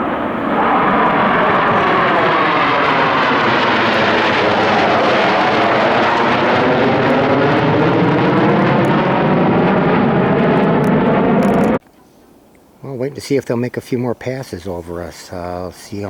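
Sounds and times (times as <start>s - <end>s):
jet aircraft roaring overhead: 0.0s - 11.8s.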